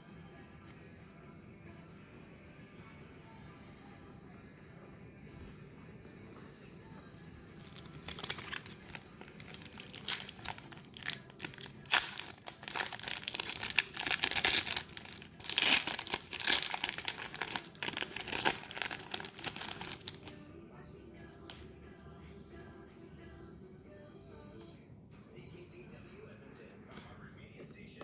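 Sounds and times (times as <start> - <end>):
wrappers crinkling and tearing: 7.6 - 20.3.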